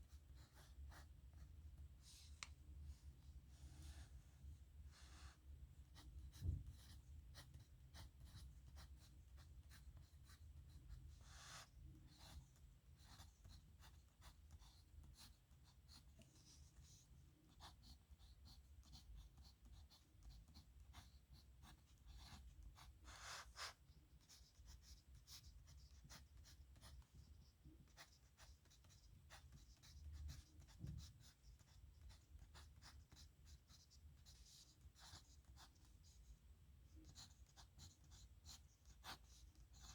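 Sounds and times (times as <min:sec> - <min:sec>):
pen nib scratching on paper: 0:06.0 - 0:36.2, 0:37.0 - 0:39.9
soft low thump: 0:06.4 - 0:06.8.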